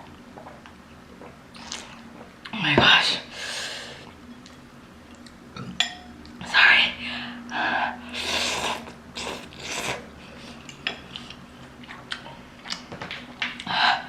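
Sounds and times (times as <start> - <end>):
person chewing with mouth clicks: 8.8 - 13.7.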